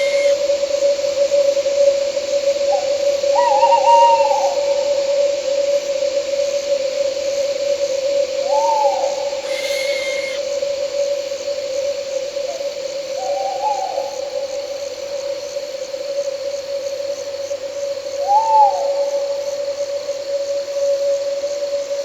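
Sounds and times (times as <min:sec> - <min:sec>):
owl hooting: 0:00.0 - 0:00.5, 0:02.7 - 0:04.8, 0:08.4 - 0:10.6, 0:13.2 - 0:14.5, 0:18.2 - 0:19.2
crickets chirping: 0:00.0 - 0:22.0.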